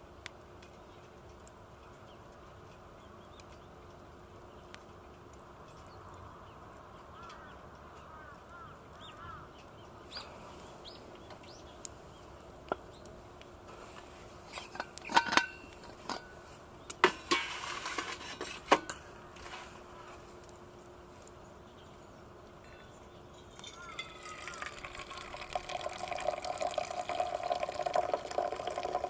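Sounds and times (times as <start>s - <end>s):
birds chirping: 1.9s - 13.2s, 20.7s - 26.0s
metal camp gear clanking: 14.5s - 16.4s, 17.0s - 19.8s.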